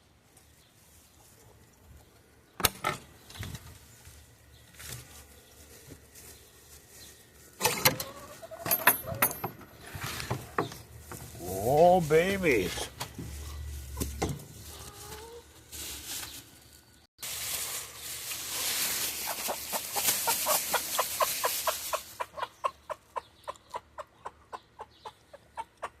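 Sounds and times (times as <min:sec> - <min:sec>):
young chickens clucking: 0:07.8 - 0:11.7, 0:13.3 - 0:15.6, 0:18.5 - 0:26.0.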